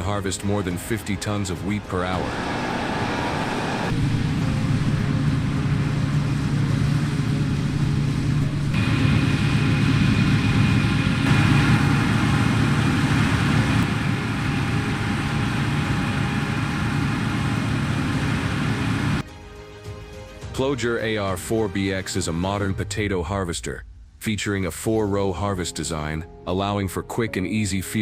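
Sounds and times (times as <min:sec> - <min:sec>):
combine harvester engine drone: 0:00.1 - 0:19.2.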